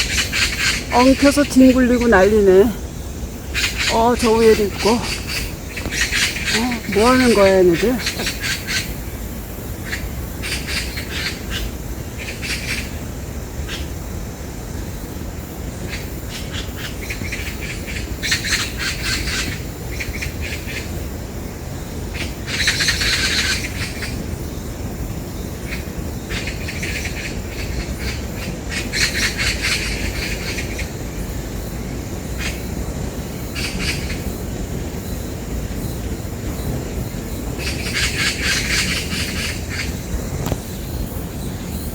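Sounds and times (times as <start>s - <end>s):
magpies harsh rattling chatter: 0.0s - 9.1s, 15.8s - 20.9s, 25.7s - 31.0s, 33.4s - 34.7s, 36.5s - 40.8s.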